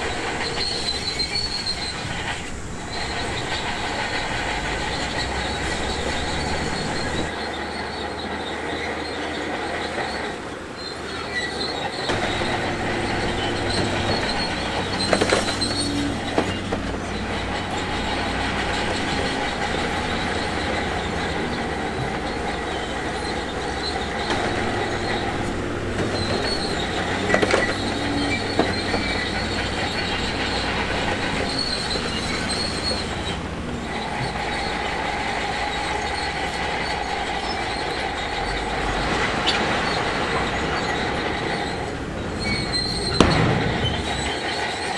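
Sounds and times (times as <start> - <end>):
diesel engine running: 0.0 - 44.9
steel tracks squealing: 0.0 - 44.9
sharp metal clanks: 12.0 - 21.1, 42.6 - 44.9.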